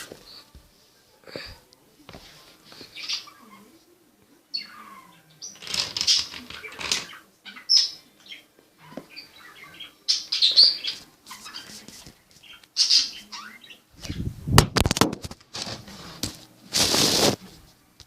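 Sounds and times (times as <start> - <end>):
parrot squawks: 12.8 - 13.8.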